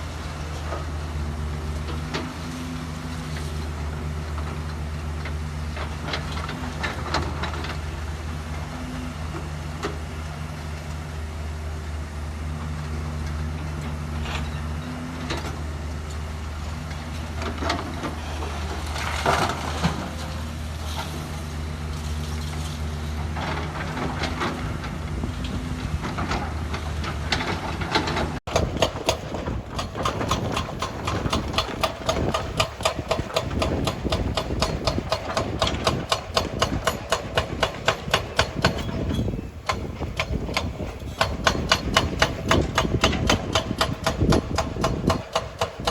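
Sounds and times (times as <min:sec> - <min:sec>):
heavy machine engine running: 0:00.0 - 0:45.9
metal clanks: 0:26.1 - 0:45.9
rapid even knocking: 0:28.5 - 0:38.9.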